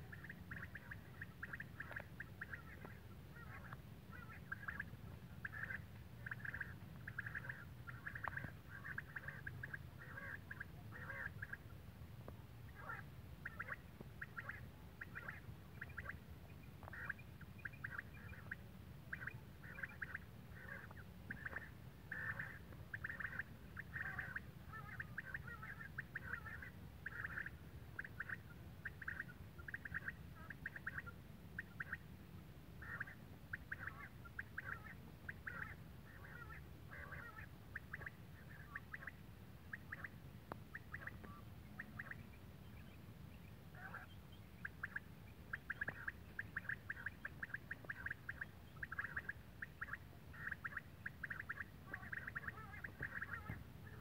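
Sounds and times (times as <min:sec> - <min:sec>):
bird chirping: 0:00.1 - 0:11.6, 0:40.7 - 0:54.0.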